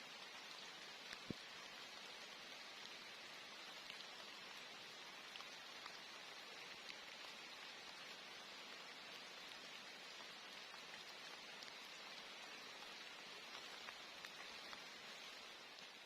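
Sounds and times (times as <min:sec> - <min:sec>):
steady rain falling: 0:00.0 - 0:16.0
raindrop ticks: 0:00.1 - 0:16.0.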